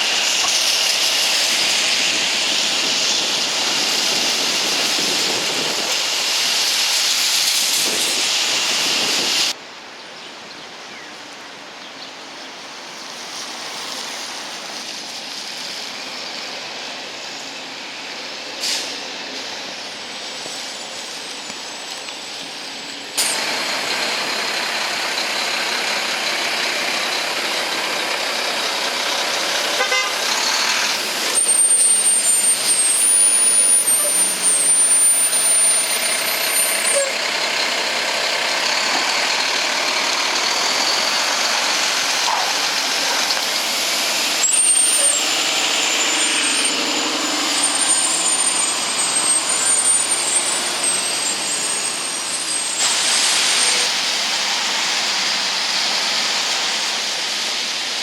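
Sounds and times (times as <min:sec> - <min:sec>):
bicycle tyres hissing: 0:00.0 - 0:09.6, 0:12.4 - 0:26.2, 0:27.7 - 0:58.0
passing vehicles: 0:12.3 - 0:58.0.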